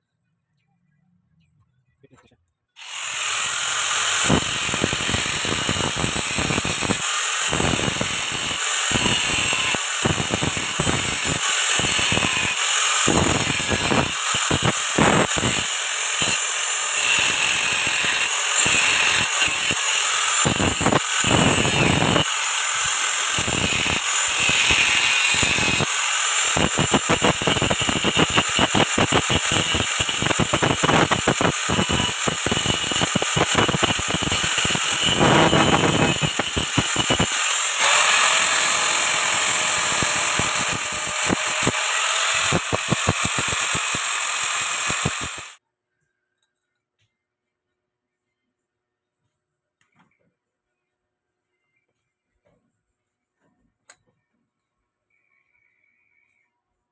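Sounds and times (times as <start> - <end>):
welding arc crackling: 18.6 - 45.6.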